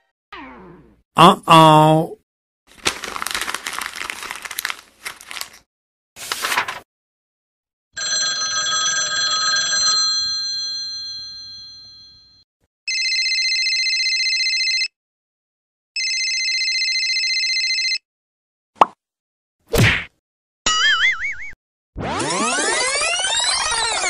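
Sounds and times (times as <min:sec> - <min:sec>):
old telephone bell ringing: 0:08.0 - 0:14.9, 0:16.0 - 0:18.0.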